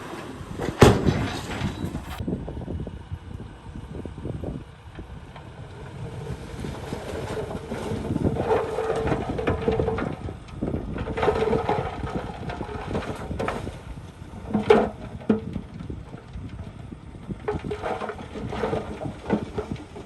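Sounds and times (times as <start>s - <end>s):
metal clatter: 0.0s - 2.2s, 6.7s - 16.8s, 17.4s - 20.0s
bulldozer diesel engine: 0.0s - 20.0s.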